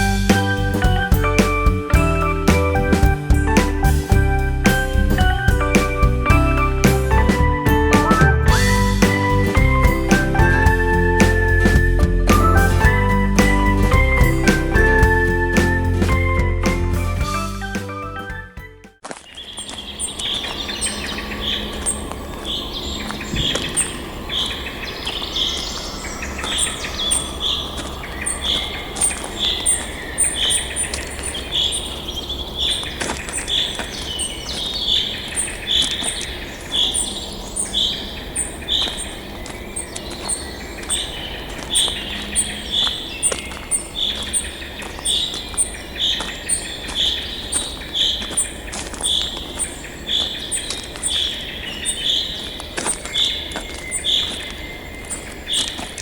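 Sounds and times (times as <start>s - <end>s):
high ticking bird call: 19.4s - 56.0s.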